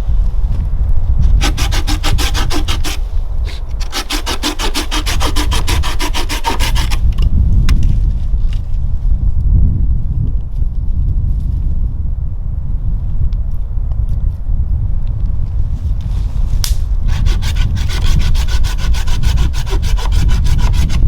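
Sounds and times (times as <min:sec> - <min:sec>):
hand tool rasping wood: 0:01.3 - 0:07.1, 0:17.1 - 0:21.0.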